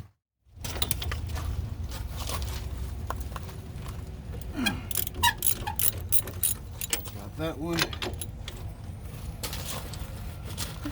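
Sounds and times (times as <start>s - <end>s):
metallic clicks of hand tools: 4.8s - 8.4s.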